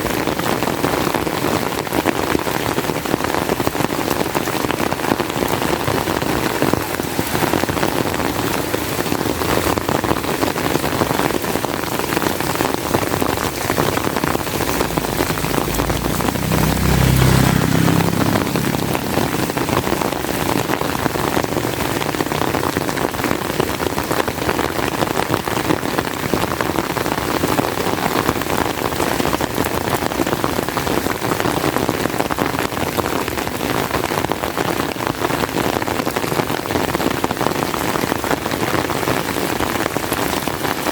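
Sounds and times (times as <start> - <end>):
heavy rain falling: 0.0 - 40.9
low rumble: 12.8 - 22.4.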